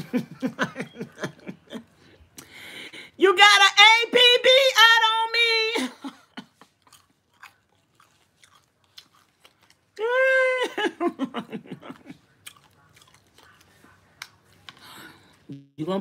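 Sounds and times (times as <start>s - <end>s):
person chewing crispy chicken: 6.4s - 10.1s, 11.8s - 15.4s
high wordless vocal note: 15.5s - 15.8s.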